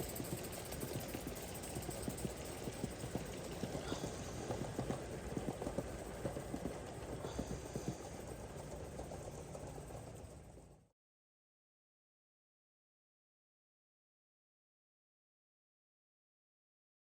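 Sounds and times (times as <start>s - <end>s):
model steam locomotive clattering: 0.0s - 10.8s.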